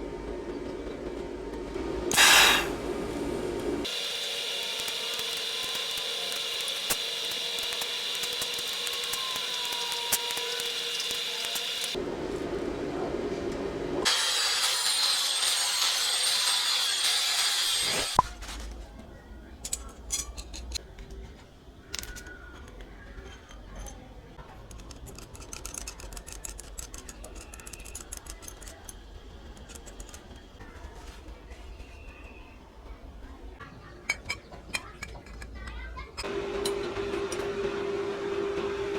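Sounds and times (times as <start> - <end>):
power tool whining: 2.1 - 2.8, 3.8 - 12.0, 36.2 - 38.9
tools and metal parts clicking: 4.7 - 12.0, 19.6 - 30.6, 34.0 - 37.4.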